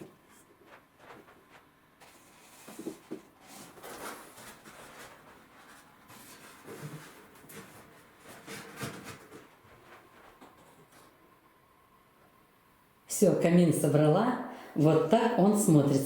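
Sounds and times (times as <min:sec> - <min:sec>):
cardboard scraping and rubbing: 0:02.0 - 0:10.4.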